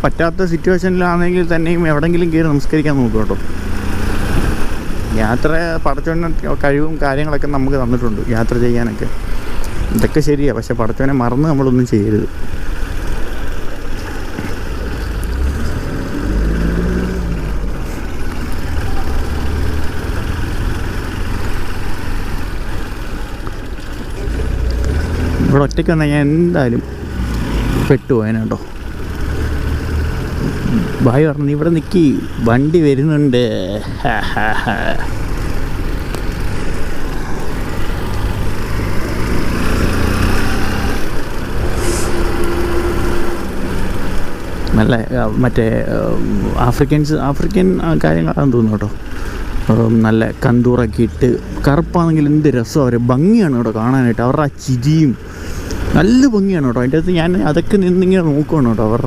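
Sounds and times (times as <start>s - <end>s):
road and wind noise: 0.0s - 59.0s
vehicle engine rumbling: 0.0s - 59.0s
steady tone: 41.2s - 44.4s.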